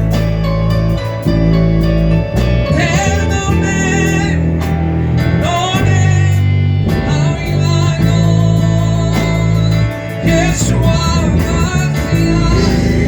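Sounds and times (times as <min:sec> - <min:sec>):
gospel band playing: 0:00.0 - 0:13.0
person singing: 0:02.6 - 0:13.0.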